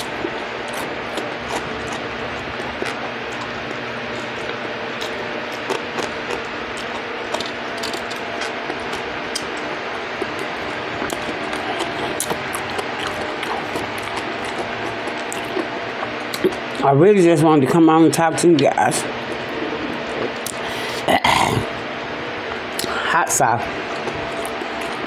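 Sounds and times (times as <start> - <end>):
chewing crispy fried fish: 0.0 - 16.8, 23.8 - 25.0
steady background noise: 0.0 - 25.0.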